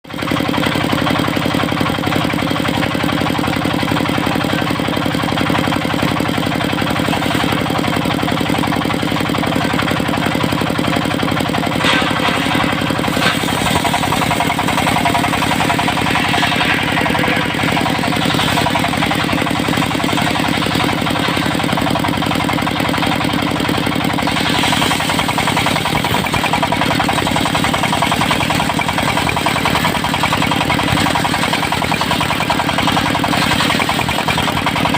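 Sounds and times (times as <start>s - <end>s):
sawmill engine running: 0.0s - 34.9s
harsh hissing noise: 13.0s - 20.4s.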